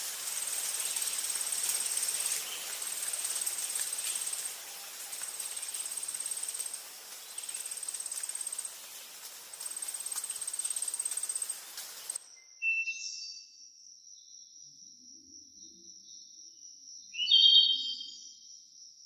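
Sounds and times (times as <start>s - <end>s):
insects trilling in bursts: 0.0s - 12.2s
forest ambience hiss: 0.0s - 12.4s.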